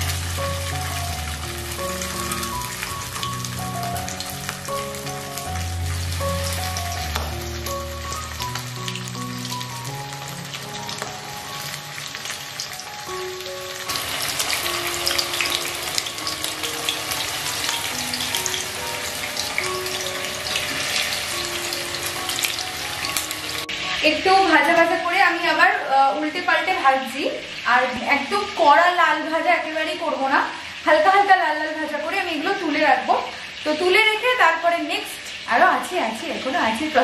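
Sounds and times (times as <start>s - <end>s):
background music: 0.0s - 28.8s
chicken frying in hot oil: 0.0s - 37.0s.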